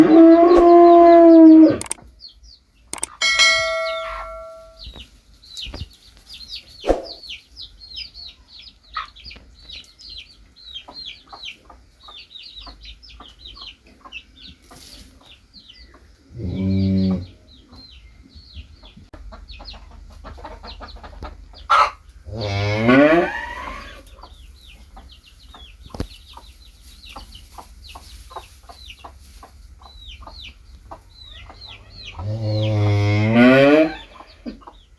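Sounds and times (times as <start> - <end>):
cow mooing: 0.0 - 1.9, 16.4 - 17.3, 22.3 - 24.0, 32.2 - 34.2
farm animal calls: 0.0 - 2.1, 3.0 - 4.9, 10.2 - 34.9
chicks peeping: 0.0 - 33.1, 33.7 - 34.9.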